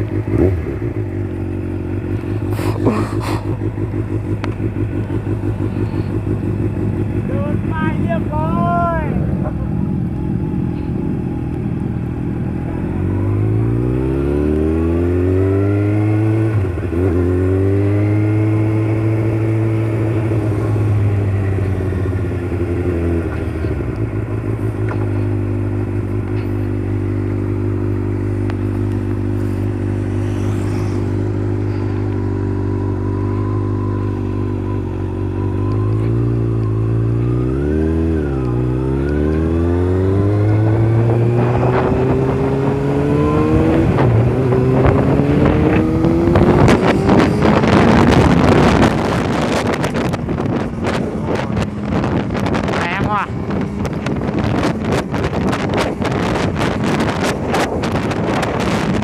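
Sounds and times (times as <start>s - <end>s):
motorcycle engine revving: 0.0s - 59.0s
wind noise on microphone: 39.5s - 59.0s.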